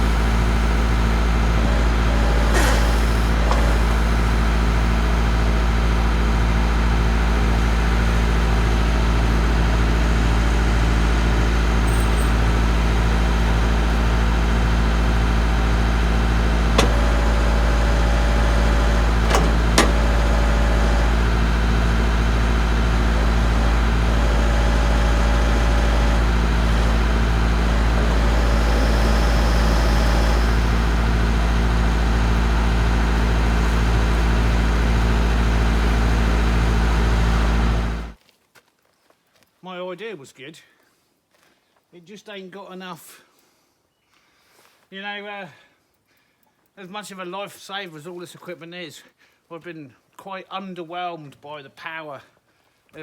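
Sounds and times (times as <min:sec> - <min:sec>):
hydraulic whine: 0:00.0 - 0:38.2
tractor engine running: 0:00.0 - 0:38.2.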